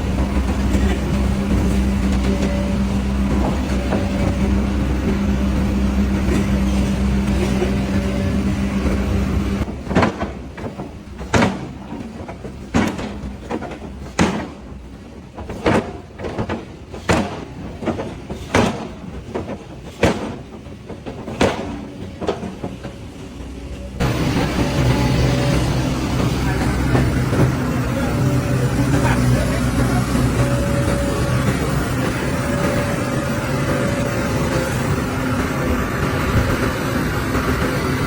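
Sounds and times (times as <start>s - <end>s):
steady hum: 0.0s - 9.7s, 24.0s - 38.0s
sharp knocks: 9.9s - 14.6s, 15.5s - 20.5s, 21.3s - 22.7s.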